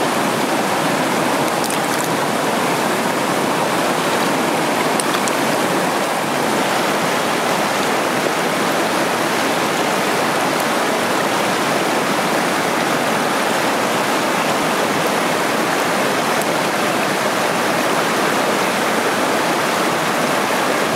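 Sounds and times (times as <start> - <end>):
stream rushing over rocks: 0.0 - 20.9.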